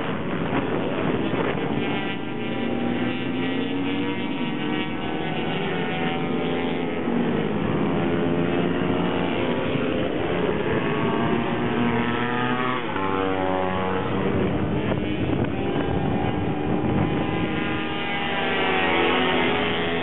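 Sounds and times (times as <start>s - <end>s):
racing minibike engines: 0.0s - 20.0s.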